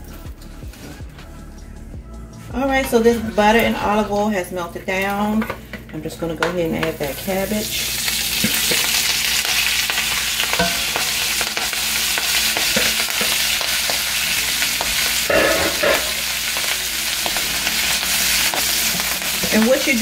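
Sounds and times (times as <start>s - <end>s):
cabbage sizzling in a skillet: 6.8s - 20.0s.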